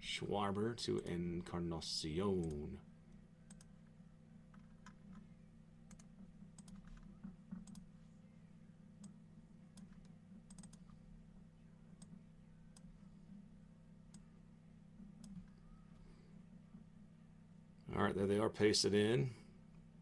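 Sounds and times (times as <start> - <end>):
steady low hum: 0.0 - 20.0
mouse and keyboard clicks: 5.9 - 7.9, 9.8 - 10.9.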